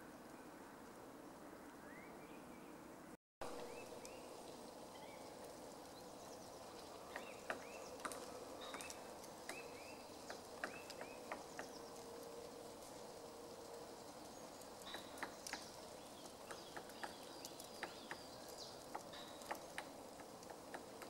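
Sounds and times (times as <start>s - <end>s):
small birds chirping: 3.4s - 13.1s, 13.7s - 21.0s
woodpecker pecking at wood: 7.1s - 11.8s, 16.3s - 21.0s.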